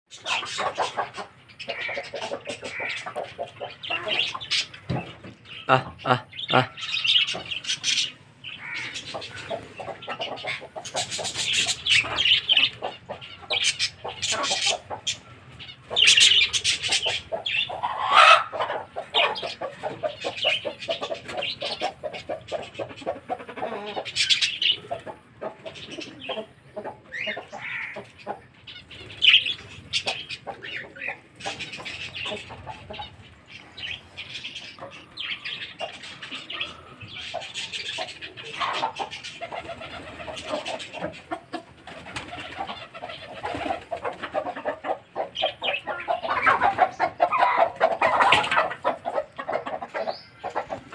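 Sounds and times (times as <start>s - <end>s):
birds chirping and calling: 0.1s - 50.9s
wings flapping: 39.4s - 40.6s, 41.8s - 44.3s.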